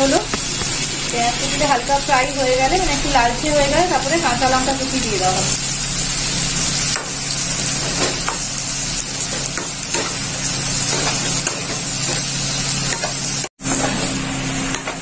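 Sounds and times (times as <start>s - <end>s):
onion sizzling in a pan: 0.0s - 15.0s.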